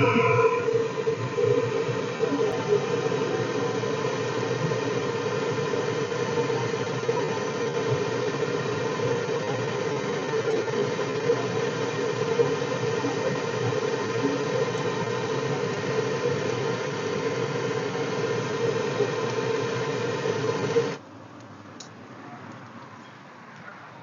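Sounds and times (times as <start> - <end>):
mechanical motor hum: 0.0 - 21.0.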